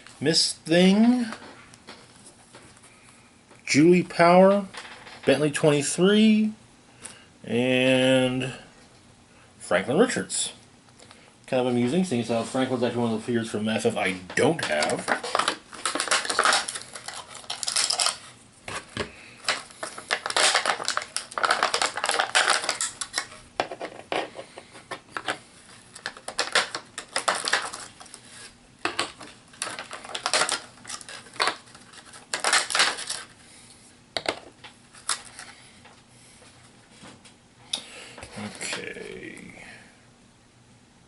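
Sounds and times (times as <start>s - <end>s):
plastic packaging crinkling: 14.4s - 24.0s, 24.9s - 33.4s, 34.3s - 35.6s
plastic miniatures clattering: 19.4s - 25.4s, 28.8s - 33.3s.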